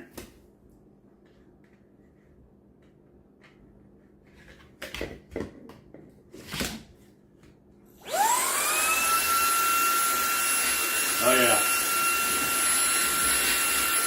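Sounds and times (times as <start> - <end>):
handheld vacuum whining: 8.0 - 14.0.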